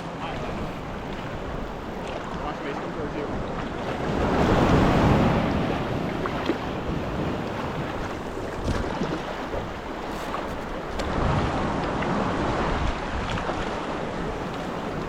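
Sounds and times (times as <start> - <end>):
sea waves washing on shore: 0.0 - 15.0
wind on microphone: 3.2 - 15.0.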